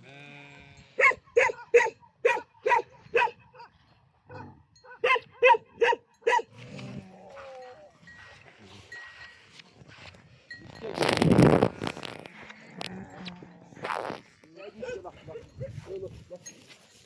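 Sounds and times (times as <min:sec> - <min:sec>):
dog barking: 0:01.0 - 0:03.7, 0:04.3 - 0:06.5, 0:14.6 - 0:15.7.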